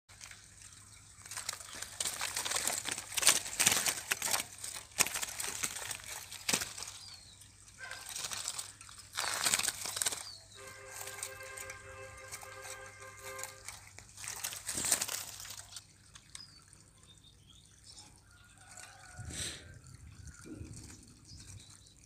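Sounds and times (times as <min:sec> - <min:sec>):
birds fluttering in a wire cage: 0:00.1 - 0:16.9, 0:17.8 - 0:22.0
held musical chord: 0:10.6 - 0:14.0.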